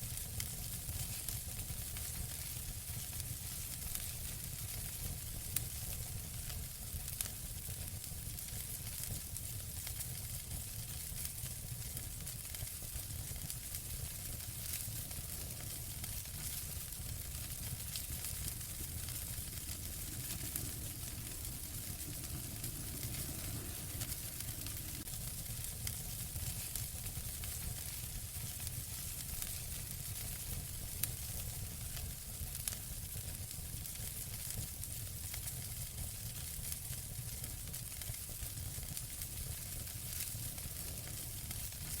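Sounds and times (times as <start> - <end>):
wood fire crackling and hissing: 0.0 - 42.0
fire popping: 8.5 - 32.7, 38.8 - 42.0.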